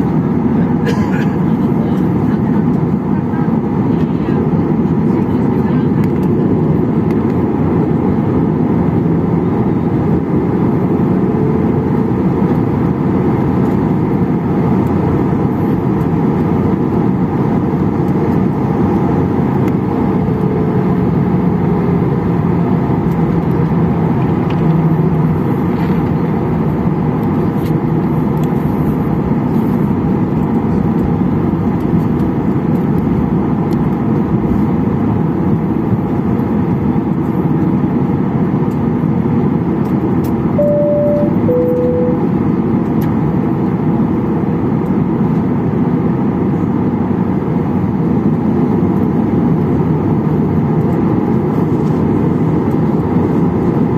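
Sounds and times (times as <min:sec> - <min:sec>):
jet engines idling: 0:00.0 - 0:08.3, 0:38.7 - 0:44.2
airplane cabin rumble: 0:00.0 - 0:53.9.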